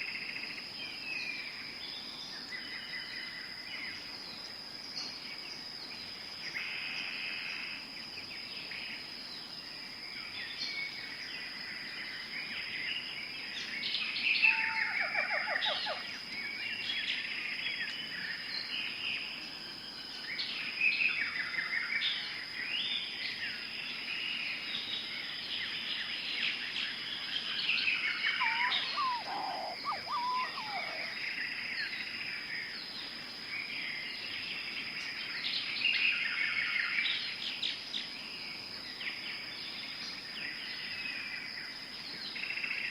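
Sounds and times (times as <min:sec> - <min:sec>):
birds chirping and trilling: 0:13.6 - 0:19.0, 0:24.3 - 0:33.0
lower bird calls: 0:27.4 - 0:32.0
falling bird trill: 0:28.4 - 0:31.1.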